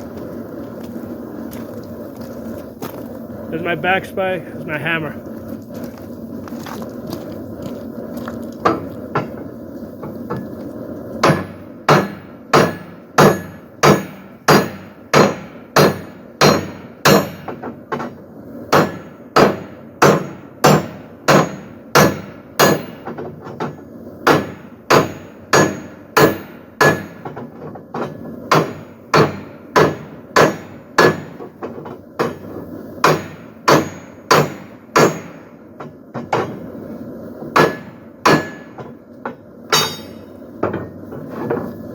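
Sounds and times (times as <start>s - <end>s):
hammer striking steel on anvil: 11.2s - 36.6s, 37.5s - 40.9s.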